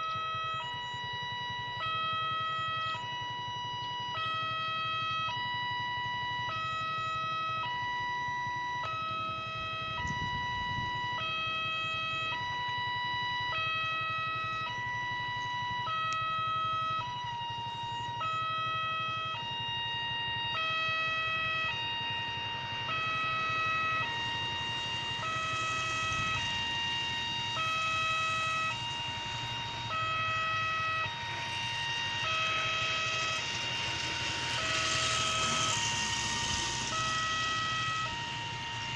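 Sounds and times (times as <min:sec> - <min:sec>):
train rushing noise: 0:30.7 - 0:38.9.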